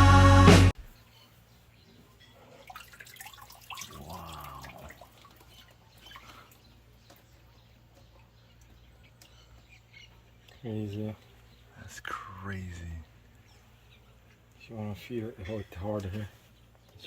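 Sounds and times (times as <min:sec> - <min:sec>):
background music: 0:00.0 - 0:00.8
water dripping and splashing: 0:02.5 - 0:07.3.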